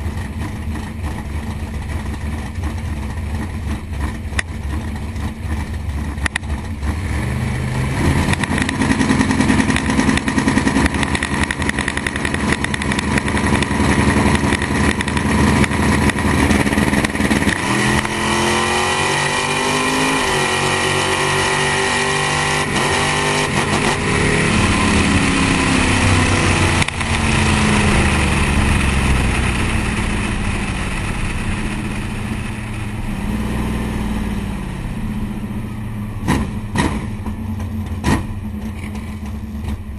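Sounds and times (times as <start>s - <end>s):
drag car engine revving: 0.0s - 39.9s
gear shift: 36.3s - 39.9s.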